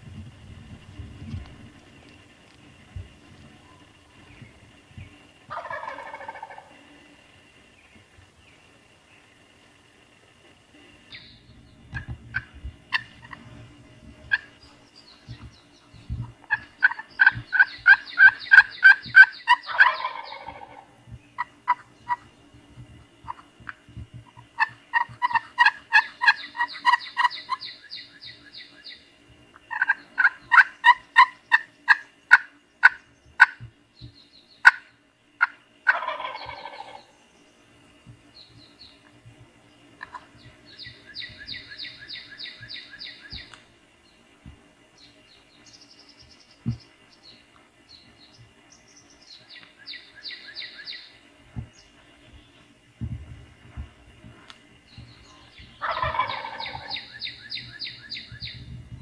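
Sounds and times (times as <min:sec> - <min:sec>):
songbird trills: 0:01.9 - 0:52.9, 0:53.8 - 0:59.0
turkey gobbling: 0:05.5 - 0:06.8, 0:11.9 - 0:13.6, 0:14.3 - 0:14.6, 0:16.3 - 0:22.3, 0:23.2 - 0:28.8, 0:29.6 - 0:33.6, 0:34.6 - 0:37.1, 0:40.0 - 0:43.6, 0:55.3 - 0:58.4
quick repeated bird calls: 0:14.3 - 0:22.4, 0:24.3 - 0:29.0, 0:54.9 - 0:58.6.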